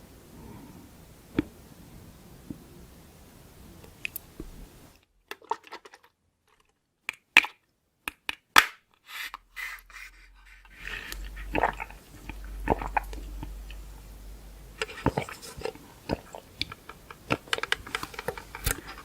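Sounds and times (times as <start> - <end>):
chewing: 10.6 - 19.0.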